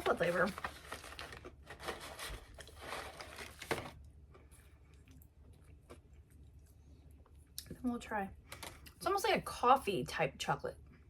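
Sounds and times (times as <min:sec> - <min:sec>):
crunchy cereal being chewed: 0:00.1 - 0:06.8.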